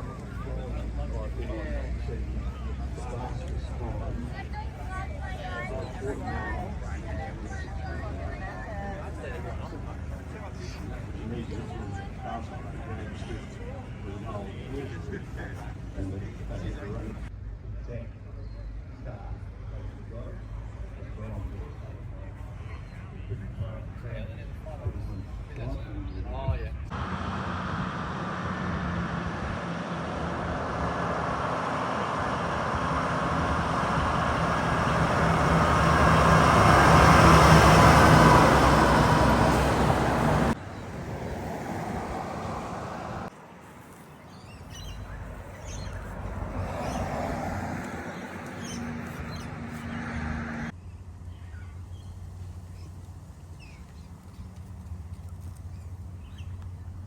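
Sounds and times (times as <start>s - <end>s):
distant engine hum: 26.7s - 57.0s
heavy truck engine: 26.9s - 43.3s.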